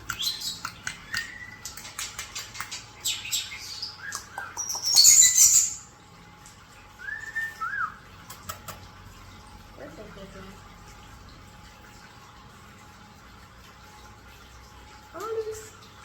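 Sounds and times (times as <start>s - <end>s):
birds clicking and chattering: 0.0s - 6.6s
bird whistles: 7.0s - 8.0s.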